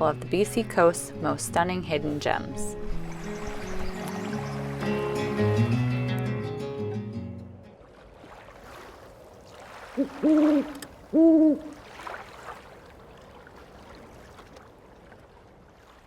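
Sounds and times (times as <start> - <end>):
low hooting calls: 10.0 - 11.8.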